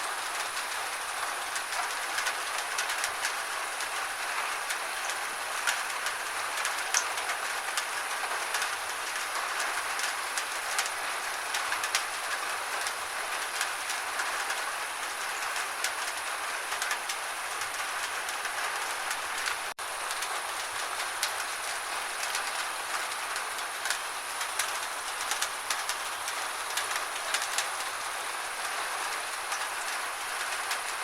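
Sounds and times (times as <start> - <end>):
gentle rain drops ticking: 0.0 - 31.0.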